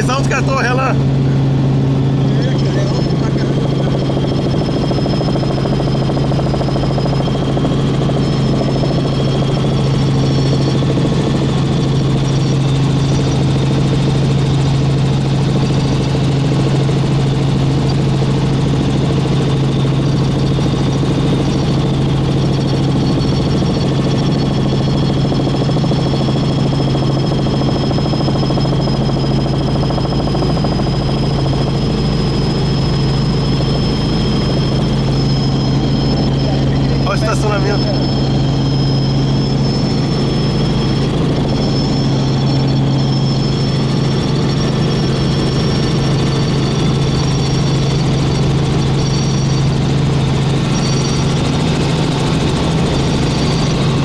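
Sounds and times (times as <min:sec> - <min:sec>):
helicopter rotor and engine drone: 0:00.0 - 0:54.0
high-pitched whine: 0:30.4 - 0:54.0.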